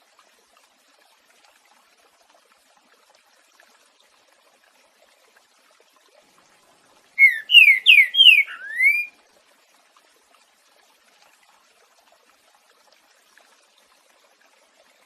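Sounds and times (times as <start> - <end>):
bird singing slurred whistles: 7.2 - 9.1.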